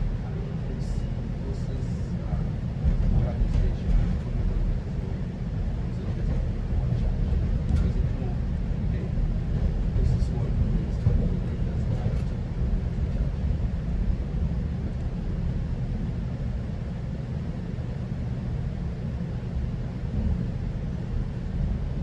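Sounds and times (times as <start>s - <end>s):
train rumbling along track: 0.0s - 22.0s.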